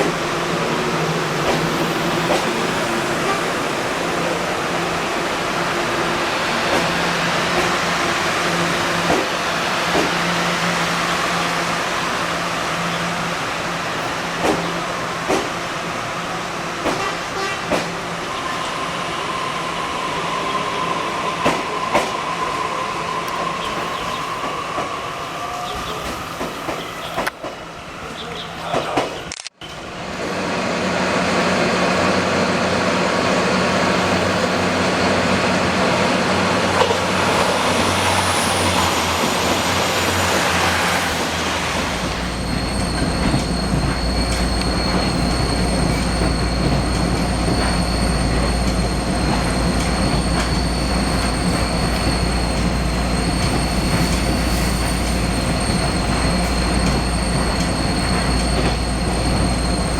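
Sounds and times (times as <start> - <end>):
train rumbling along track: 0.0 - 59.9.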